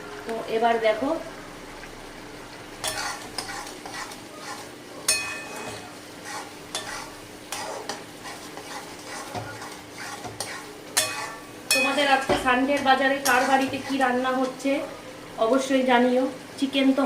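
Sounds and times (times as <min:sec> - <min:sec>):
light sizzle: 0:00.0 - 0:17.0
spatula scraping a pan: 0:02.8 - 0:14.6.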